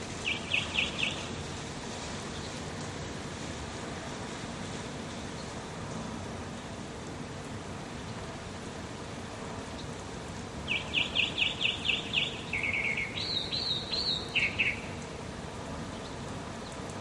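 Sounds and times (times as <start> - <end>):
songbird singing: 0.0 - 1.4, 2.2 - 2.6, 10.6 - 15.1, 15.8 - 16.9
steady background hiss: 0.0 - 17.0.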